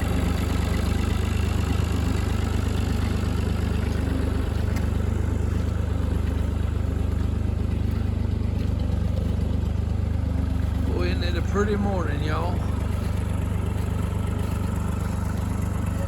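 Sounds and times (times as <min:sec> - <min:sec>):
tractor engine droning: 0:00.0 - 0:16.0.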